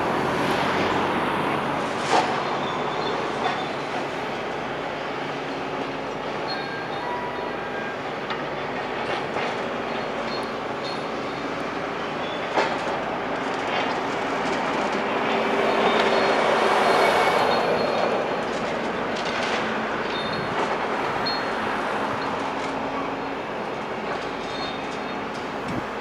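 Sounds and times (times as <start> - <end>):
metallic squeals and clatter: 1.9 - 26.0
demolition machinery grinding: 8.1 - 26.0.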